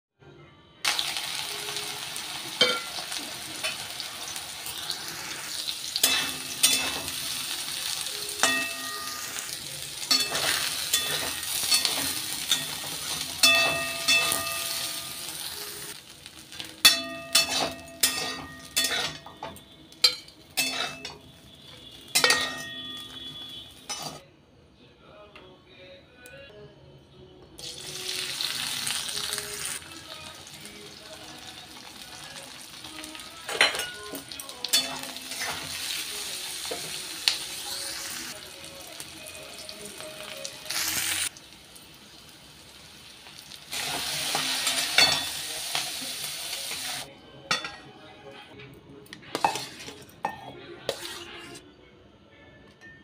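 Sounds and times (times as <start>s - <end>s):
food sizzling in hot oil: 0.8s - 24.2s, 27.6s - 47.1s
spatula scraping and clinking on pan: 6.0s - 7.4s, 8.4s - 15.5s, 16.8s - 24.2s, 49.3s - 51.6s.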